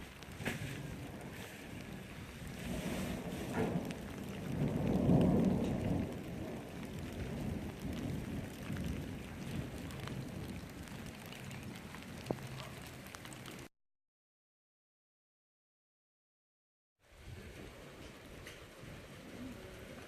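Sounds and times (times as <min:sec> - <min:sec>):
steady rain: 0:00.0 - 0:13.7, 0:17.0 - 0:20.0
thunder rumbling: 0:00.0 - 0:13.7.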